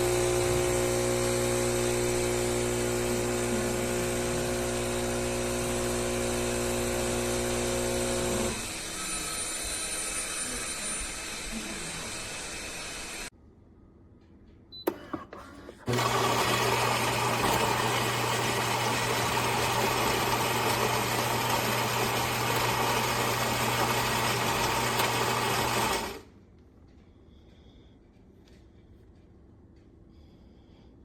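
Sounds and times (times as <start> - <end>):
espresso machine whirring: 0.0 - 13.3, 15.8 - 26.3.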